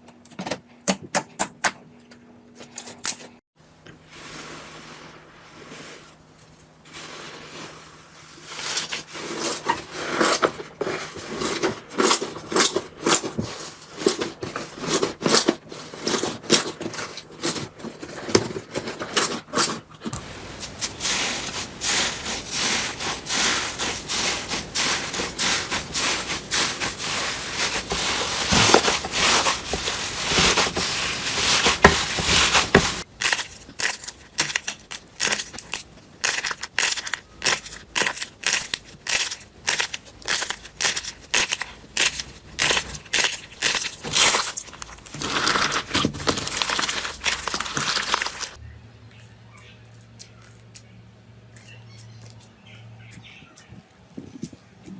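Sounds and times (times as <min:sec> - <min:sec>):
hands squeezing slime: 0:20.2 - 0:48.6
slime crackling and popping: 0:20.2 - 0:48.6.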